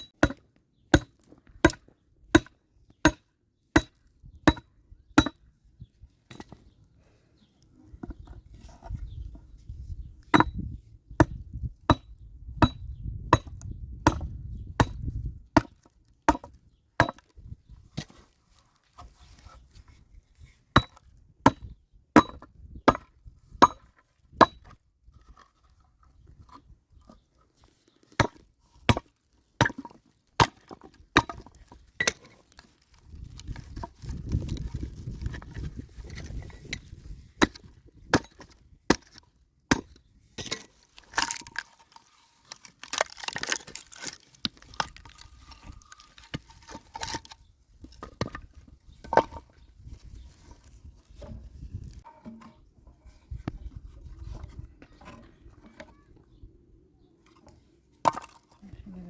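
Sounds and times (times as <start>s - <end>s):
hand tool striking wood: 0.0s - 1.8s, 2.4s - 3.2s, 3.8s - 4.6s, 37.4s - 41.6s.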